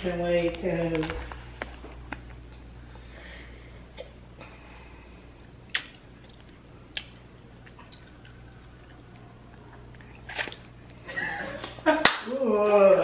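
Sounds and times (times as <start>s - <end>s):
wet chewing sounds: 5.6s - 11.0s
sharp mouth smacks: 5.7s - 7.2s.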